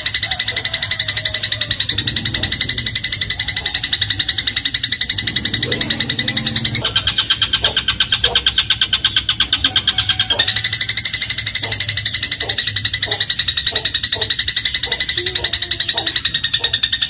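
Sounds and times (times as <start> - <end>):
sparrow chattering trill: 0.0 - 17.0.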